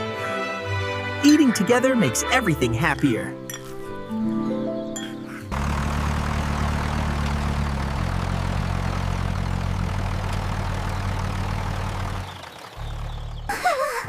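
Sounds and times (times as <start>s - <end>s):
engine running with hiss: 5.3s - 13.5s.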